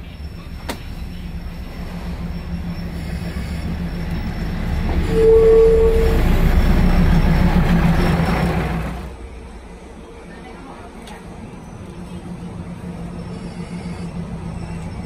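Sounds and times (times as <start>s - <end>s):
diesel train passing: 0.0s - 15.0s
train horn: 4.9s - 7.4s.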